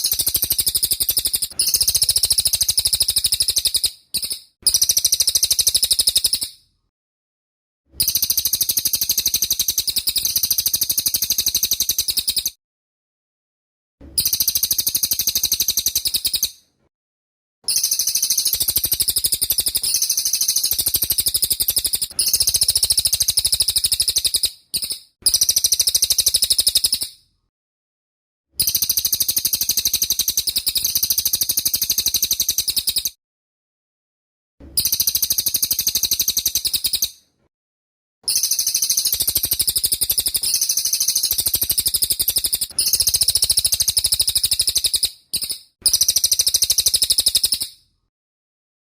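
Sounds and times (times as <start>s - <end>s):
bird rapid trilling song: 0.0s - 6.7s, 8.0s - 12.6s, 14.2s - 16.6s, 17.7s - 27.3s, 28.6s - 33.2s, 34.8s - 37.2s, 38.3s - 47.9s.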